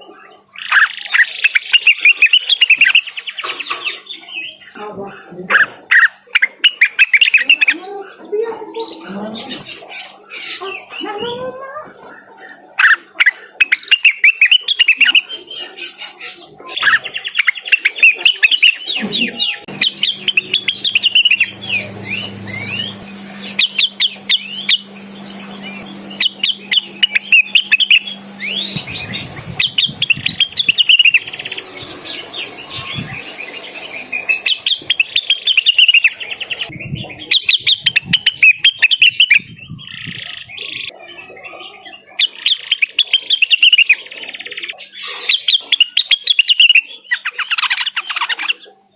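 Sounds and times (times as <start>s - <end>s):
bird singing chirped notes: 18.1s - 39.8s.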